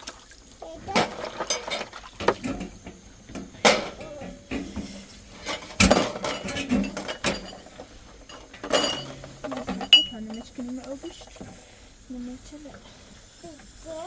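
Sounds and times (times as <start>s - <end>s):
dishes and utensils clinking: 0.7s - 11.8s.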